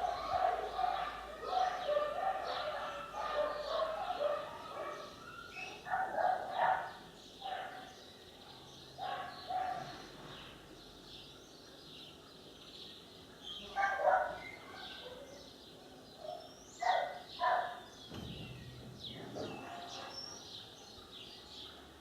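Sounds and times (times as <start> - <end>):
dog barking: 0.0 - 8.0, 9.0 - 10.1, 13.7 - 15.5, 16.2 - 17.9, 19.4 - 20.2.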